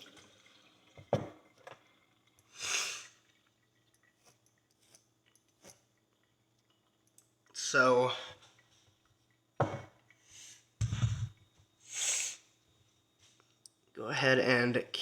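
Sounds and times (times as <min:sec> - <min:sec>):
water jet hissing: 0:02.4 - 0:03.3, 0:10.2 - 0:12.5.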